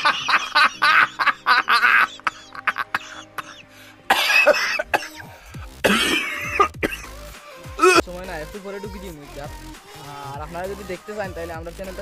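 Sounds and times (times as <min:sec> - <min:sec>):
person coughing: 0:02.2 - 0:07.1, 0:07.8 - 0:08.0.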